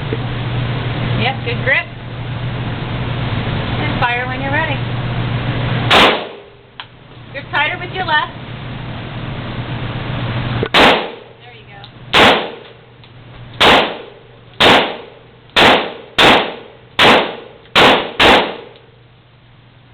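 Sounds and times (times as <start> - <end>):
pistol shots: 5.9 - 6.5, 10.7 - 11.3, 12.1 - 12.8, 13.6 - 18.8.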